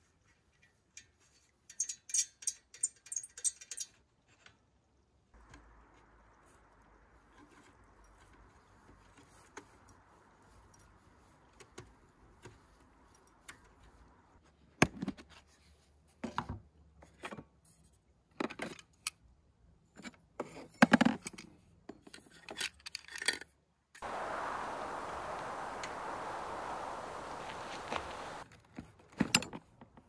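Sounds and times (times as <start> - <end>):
faint steady hiss: 5.1 - 14.4, 24.0 - 28.4.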